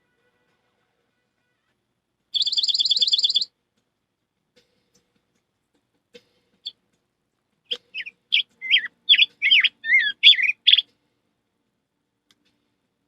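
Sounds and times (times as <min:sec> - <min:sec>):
person whistling birdsong: 0:02.4 - 0:03.5, 0:07.7 - 0:10.8.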